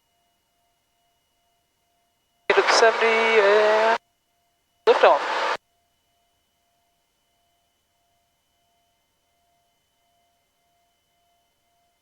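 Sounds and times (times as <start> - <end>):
faint electronic tones: 2.5 - 4.0, 4.9 - 5.6.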